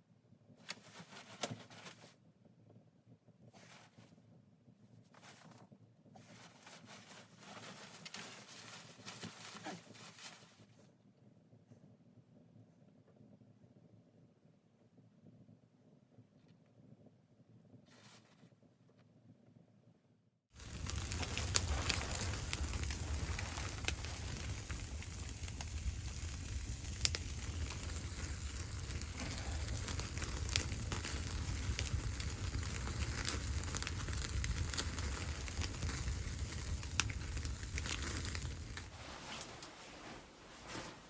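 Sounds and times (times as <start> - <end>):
fire crackling and popping: 20.5 - 41.0
wood fire rumbling: 20.5 - 41.0.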